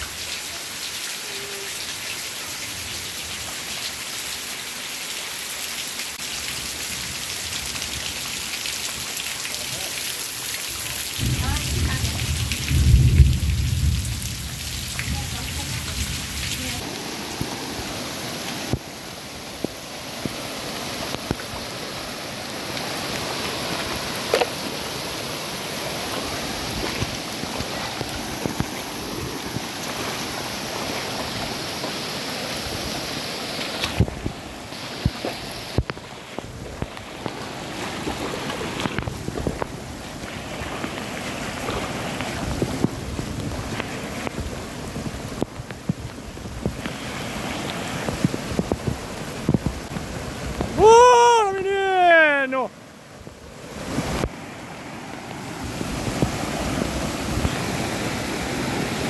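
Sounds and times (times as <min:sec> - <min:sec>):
floodwater running over ground: 0:00.0 - 0:59.0
heavy rain pouring: 0:00.0 - 0:59.0
thunder rumble: 0:11.2 - 0:16.8.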